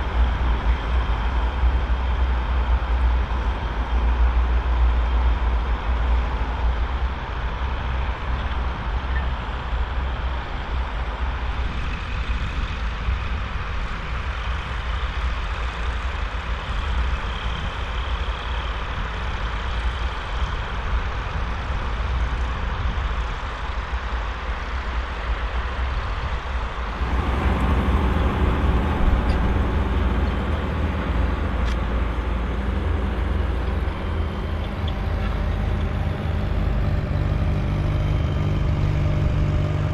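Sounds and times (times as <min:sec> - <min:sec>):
tractor diesel engine running: 0:00.0 - 0:11.8, 0:23.2 - 0:39.9.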